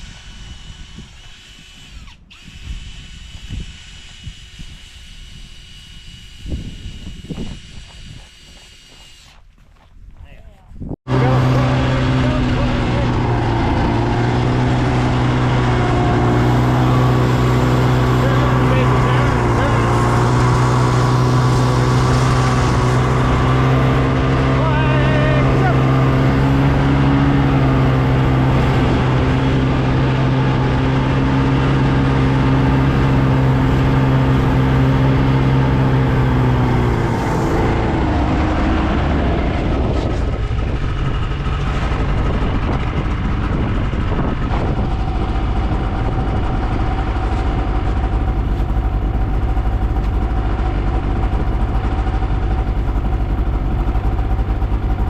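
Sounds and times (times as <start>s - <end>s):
vehicle engine running: 11.0s - 55.0s.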